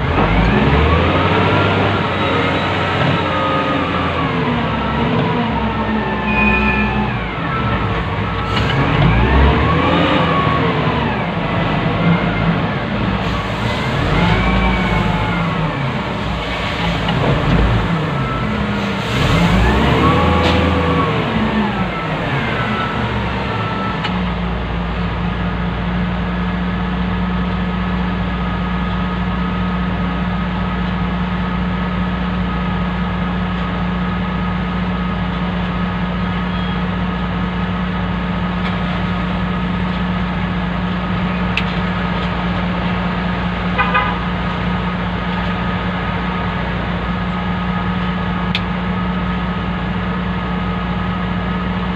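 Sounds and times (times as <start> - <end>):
diesel engine revving and humming: 0.0 - 51.9.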